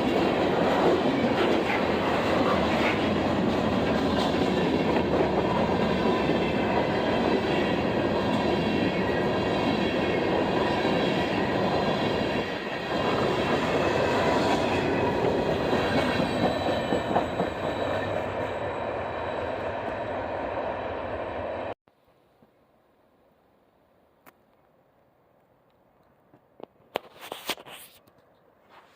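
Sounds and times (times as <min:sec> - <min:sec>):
train wheels on rails: 0:00.0 - 0:21.8.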